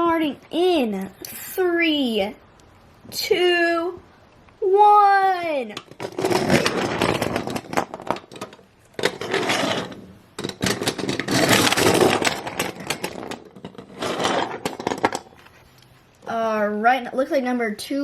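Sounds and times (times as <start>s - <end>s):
toy cars rattling on hard surface: 5.8s - 15.4s.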